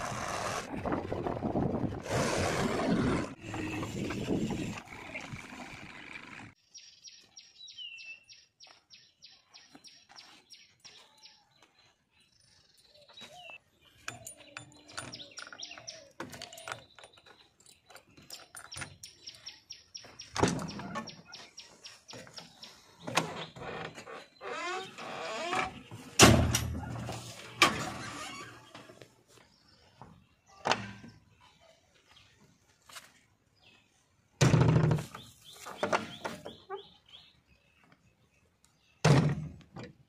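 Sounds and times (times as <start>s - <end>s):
bird chirping: 6.0s - 26.2s, 35.0s - 39.0s.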